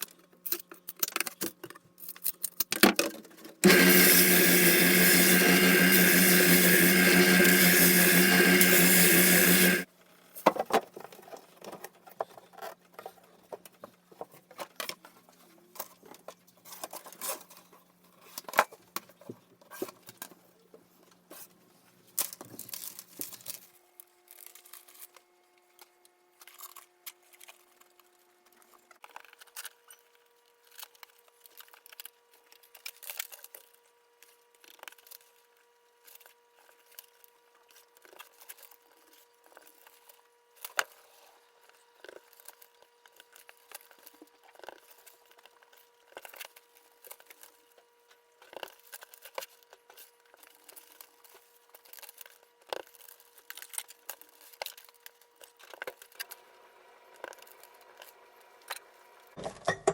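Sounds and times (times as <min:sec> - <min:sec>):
loud mechanical noise: 0:03.6 - 0:09.9.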